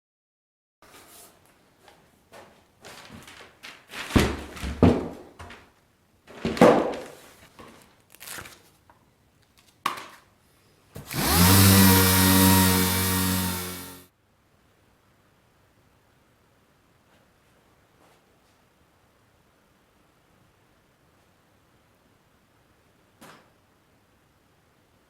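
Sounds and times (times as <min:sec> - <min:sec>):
motor humming: 0:11.1 - 0:14.0.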